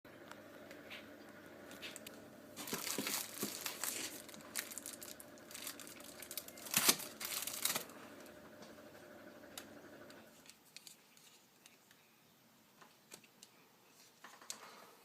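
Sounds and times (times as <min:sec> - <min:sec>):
packaging crinkling and rustling: 0:01.8 - 0:07.9, 0:10.4 - 0:11.8.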